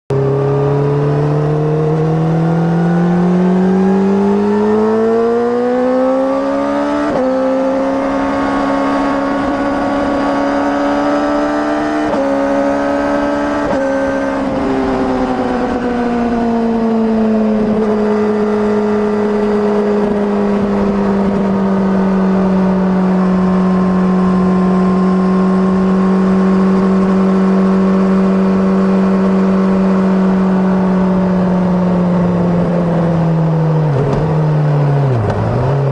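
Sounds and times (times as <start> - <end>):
motorcycle engine accelerating: 0.1 - 35.9.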